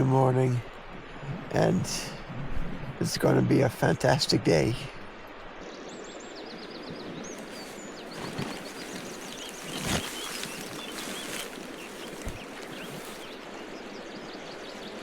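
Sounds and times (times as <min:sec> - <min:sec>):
outdoor background hiss: 0:00.0 - 0:15.0
small birds chirping and singing: 0:05.6 - 0:15.0.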